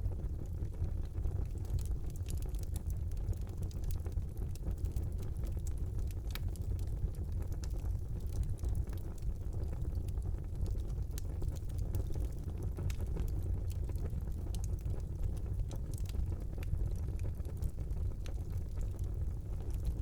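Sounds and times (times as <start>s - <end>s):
fire crackles and pops: 0.0s - 20.0s
fire roaring: 0.0s - 20.0s.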